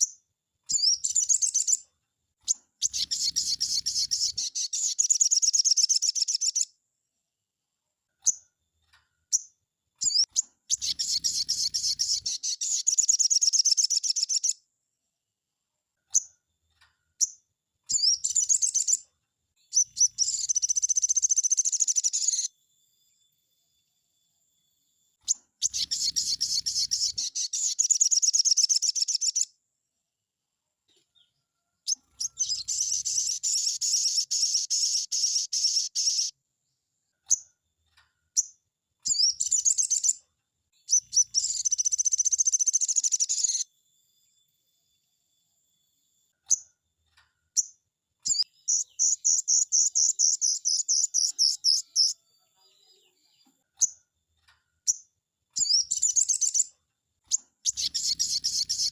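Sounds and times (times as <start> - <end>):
short bird chirps: 0.0 - 6.7, 9.3 - 14.6, 17.2 - 22.6, 25.2 - 29.6, 30.9 - 36.4, 38.3 - 40.2, 40.8 - 43.7, 47.5 - 54.0, 54.8 - 58.9
bird singing rapid high notes: 2.8 - 6.7, 10.0 - 14.6, 25.3 - 29.5, 31.9 - 36.3, 40.9 - 43.6, 48.3 - 52.2, 57.3 - 58.9.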